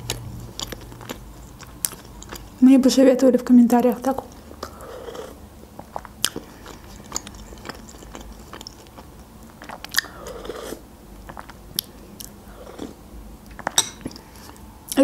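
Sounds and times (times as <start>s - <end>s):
wet chewing mouth sounds: 0.0s - 2.6s, 4.3s - 15.0s.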